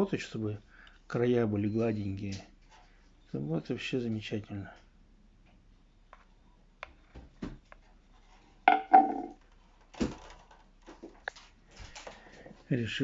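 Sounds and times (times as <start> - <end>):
hard objects clattering: 8.7 - 9.4.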